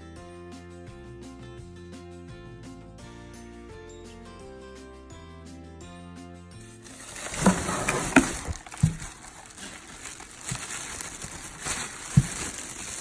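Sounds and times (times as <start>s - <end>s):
packaging rustling and crinkling: 6.7s - 13.0s.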